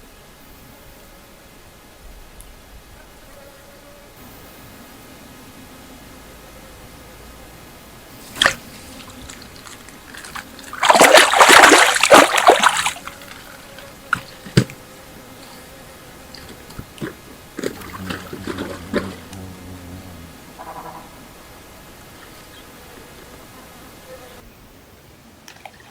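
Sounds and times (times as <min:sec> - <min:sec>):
water splashing and sloshing: 0:08.2 - 0:14.8, 0:16.3 - 0:19.4, 0:25.4 - 0:25.9.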